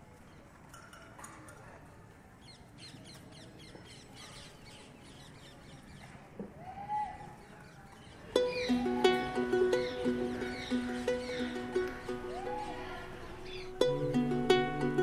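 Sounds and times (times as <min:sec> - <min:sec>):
birds chirping: 0:02.4 - 0:06.4, 0:07.2 - 0:15.0
drawn-out bird call: 0:08.4 - 0:13.9.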